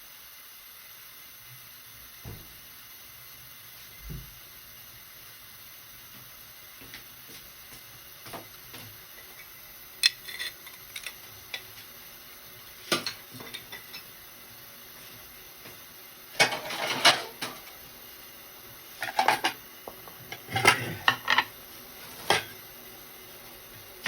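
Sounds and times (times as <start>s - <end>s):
dishes and utensils clattering: 16.4s - 17.7s, 19.0s - 19.6s, 20.3s - 21.5s, 22.2s - 22.6s.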